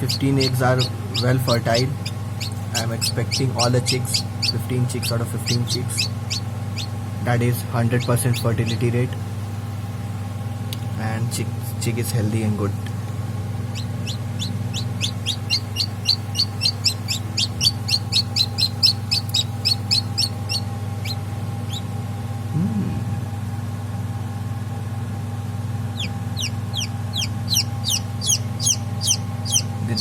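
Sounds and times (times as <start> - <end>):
chick peeping: 0.0 - 7.0, 13.7 - 21.9, 25.9 - 30.0
steady low hum: 0.0 - 30.0.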